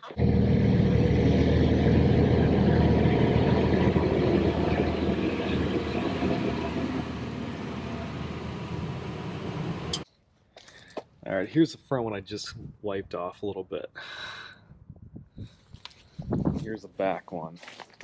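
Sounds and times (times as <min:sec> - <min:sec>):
vehicle engine idling: 0:00.1 - 0:10.0.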